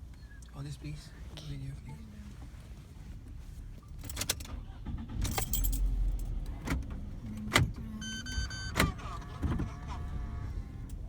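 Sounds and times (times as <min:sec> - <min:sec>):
low car rumble: 0:04.4 - 0:11.0.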